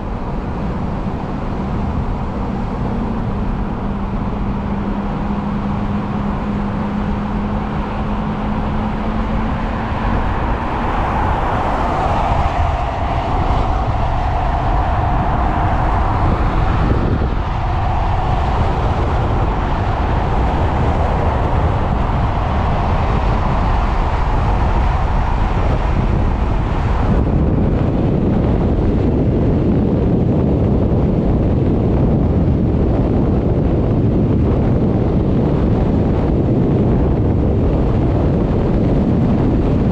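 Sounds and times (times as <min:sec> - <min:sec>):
low rumble of road noise: 0:00.0 - 0:39.9
wind buffeting microphone: 0:00.0 - 0:39.9.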